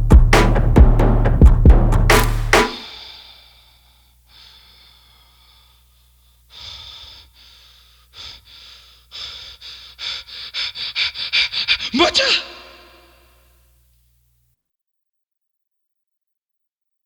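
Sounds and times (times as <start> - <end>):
person breathing: 2.8 - 13.6.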